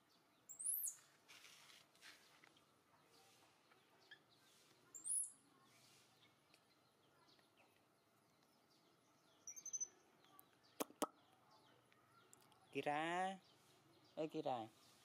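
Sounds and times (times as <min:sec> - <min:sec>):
faint bird chirps: 0:00.0 - 0:01.1, 0:02.0 - 0:15.0
sharp high bird chirp: 0:00.5 - 0:01.0, 0:05.0 - 0:05.4, 0:09.4 - 0:10.0.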